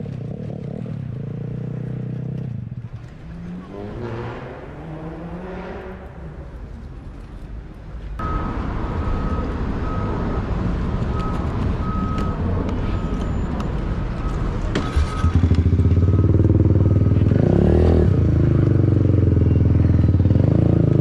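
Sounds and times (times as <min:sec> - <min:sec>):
short electronic beeps: 0:08.2 - 0:10.5, 0:11.1 - 0:18.1
motorcycle engine revving: 0:14.3 - 0:21.0.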